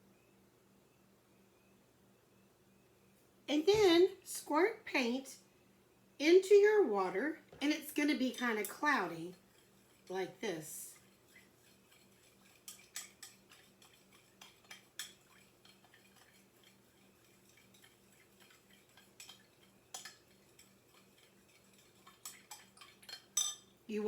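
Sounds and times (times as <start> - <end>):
utensil clinking against cup: 11.0 - 23.7.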